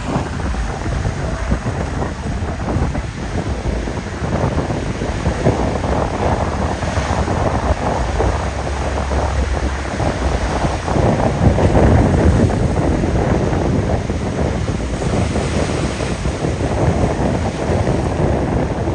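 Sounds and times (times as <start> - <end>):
wind blowing across microphone: 0.0 - 18.9.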